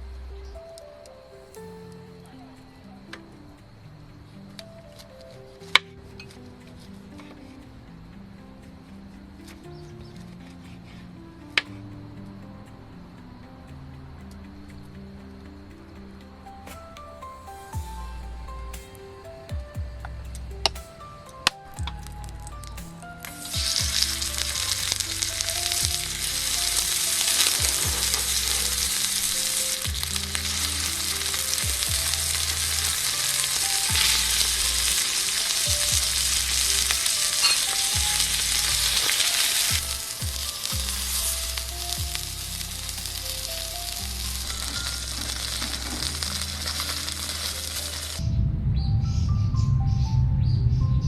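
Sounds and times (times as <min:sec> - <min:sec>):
food sizzling in a pan: 0:23.2 - 0:48.2.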